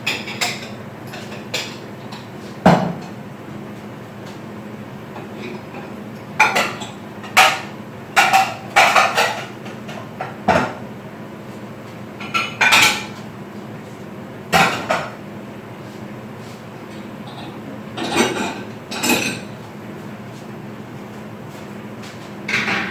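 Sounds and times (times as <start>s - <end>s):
dishes and cutlery clinking: 17.3s - 19.6s.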